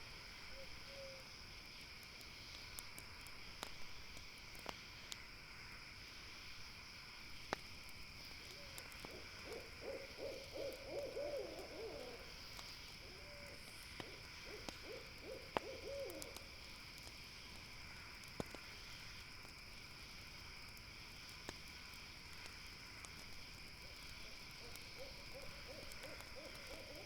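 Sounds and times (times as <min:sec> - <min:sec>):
campfire crackling: 0:00.0 - 0:27.0
night insects chirring: 0:00.0 - 0:27.0
owl hooting: 0:00.6 - 0:01.2, 0:08.6 - 0:12.4, 0:13.0 - 0:16.4, 0:24.6 - 0:27.0.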